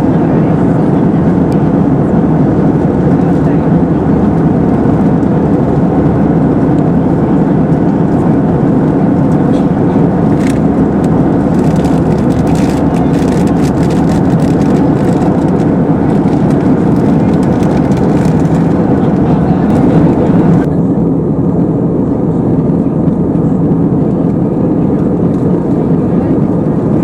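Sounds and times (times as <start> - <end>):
airplane cabin engine roar: 0.0 - 27.0
faint clicks and rattles: 10.4 - 20.2.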